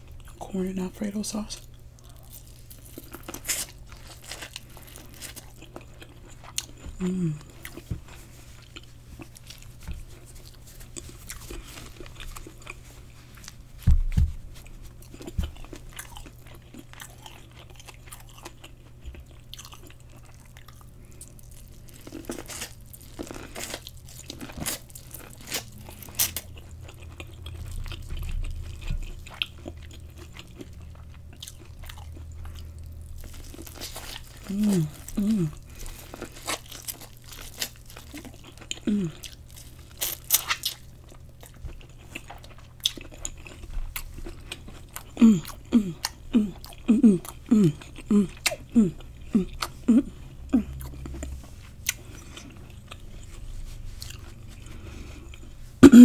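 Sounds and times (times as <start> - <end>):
crunching and chewing corn: 0.0 - 55.8.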